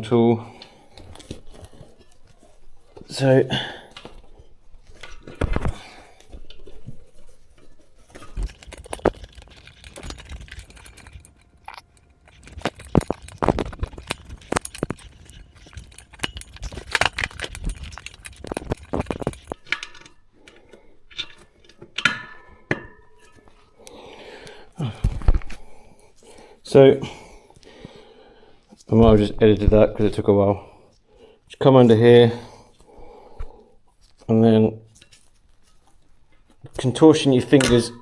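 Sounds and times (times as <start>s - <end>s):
metallic clinks on wheel rim: 8.2s - 20.0s.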